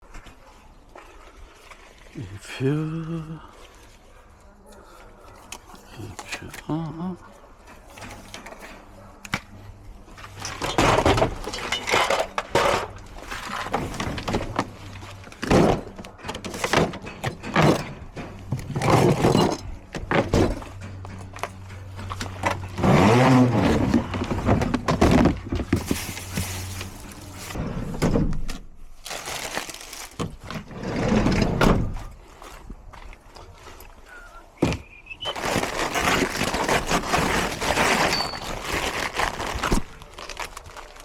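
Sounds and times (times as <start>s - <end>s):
hard plastic parts clattering: 10.2s - 32.0s, 34.6s - 41.0s.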